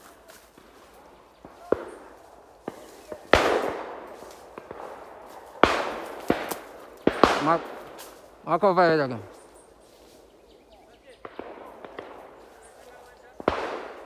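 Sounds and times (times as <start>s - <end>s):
shotgun shots echoing: 0.0s - 9.6s, 11.0s - 14.0s
faint sharp shot cracks: 1.4s - 8.3s, 11.2s - 14.0s.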